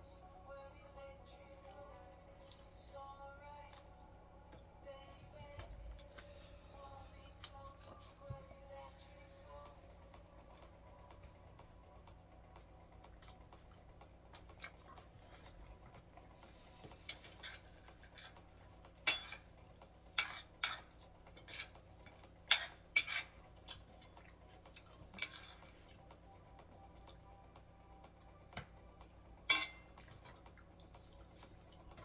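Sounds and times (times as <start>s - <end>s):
cutlery scraping a dish: 16.4s - 18.5s, 19.1s - 19.5s, 20.2s - 24.2s, 24.8s - 25.8s, 29.5s - 30.0s
cutlery clinking on a dish: 16.8s - 18.5s, 19.1s - 19.5s, 20.2s - 24.2s, 25.1s - 25.8s, 29.5s - 30.4s.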